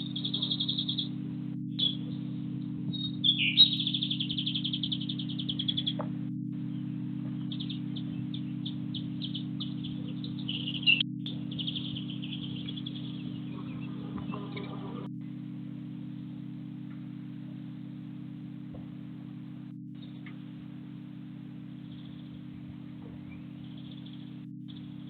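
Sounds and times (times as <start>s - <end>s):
songbirds chirping: 0.0s - 25.0s
steady low hum: 0.0s - 25.0s
fast high bird trill: 3.0s - 6.0s.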